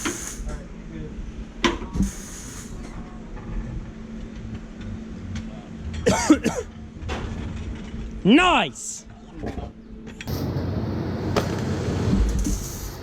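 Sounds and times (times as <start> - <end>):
person coughing: 6.1 - 6.7.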